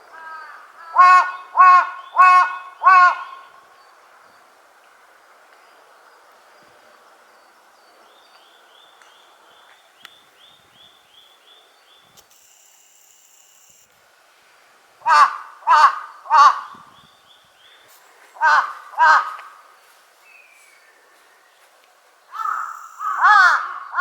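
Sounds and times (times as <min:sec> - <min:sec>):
crow cawing: 0:00.1 - 0:03.6, 0:15.0 - 0:16.8, 0:18.4 - 0:19.6, 0:22.3 - 0:24.0
short high repeated calls: 0:22.3 - 0:24.0.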